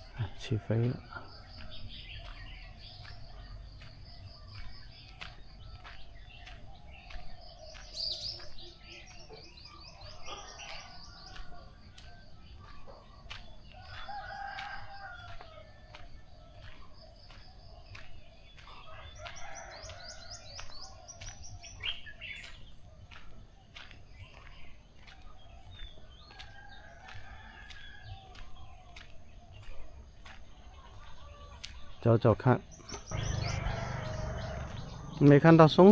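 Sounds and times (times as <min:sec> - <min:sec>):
small birds chirping and trilling: 0:00.0 - 0:35.9
rooster crowing: 0:13.8 - 0:15.7, 0:33.1 - 0:35.2.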